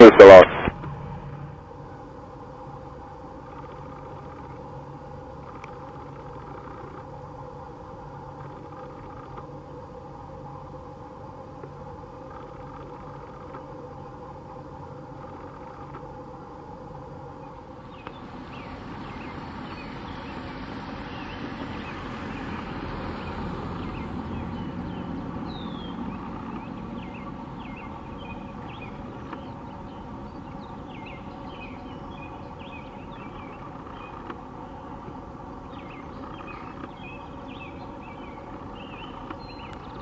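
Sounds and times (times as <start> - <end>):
jet engine rumble: 0.0 - 40.0
small birds chirping: 11.6 - 40.0.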